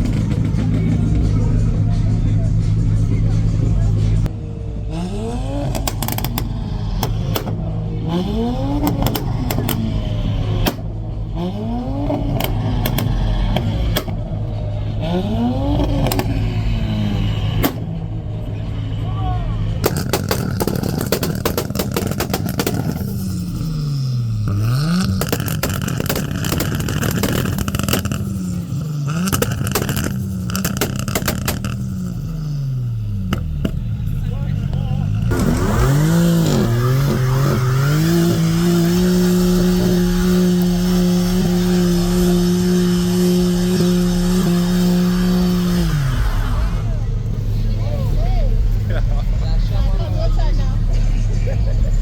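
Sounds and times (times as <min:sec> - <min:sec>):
car engine revving: 0:00.0 - 0:52.0
exhaust crackles: 0:00.0 - 0:52.0
sharp cracks: 0:19.8 - 0:23.2, 0:24.7 - 0:28.5, 0:29.1 - 0:32.1.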